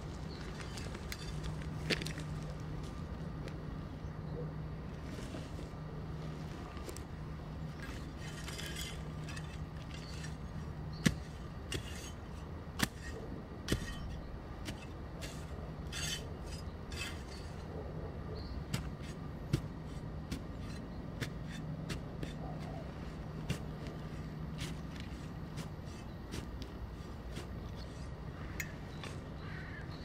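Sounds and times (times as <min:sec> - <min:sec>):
steady low hum: 0:00.0 - 0:30.0
short scraping sounds: 0:11.7 - 0:17.6.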